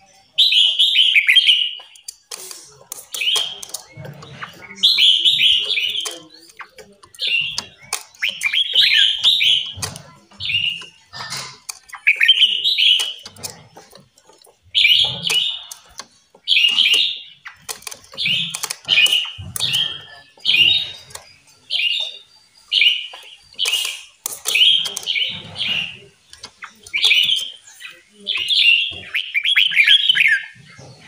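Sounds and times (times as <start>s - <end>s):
songbirds chirping: 0.0s - 31.0s
scattered clicks: 0.4s - 30.4s.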